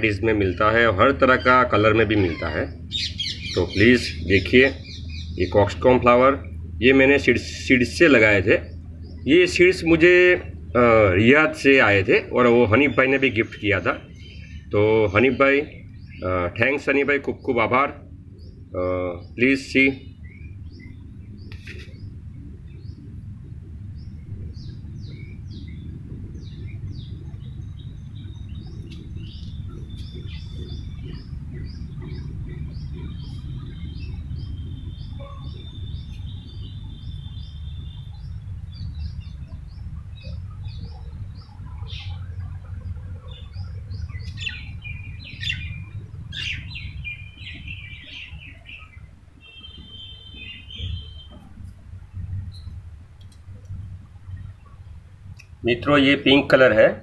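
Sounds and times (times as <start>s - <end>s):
small birds chirping: 0.0s - 57.0s
steady low rumble: 0.0s - 57.0s
bird trills: 0.5s - 5.6s, 24.0s - 51.9s.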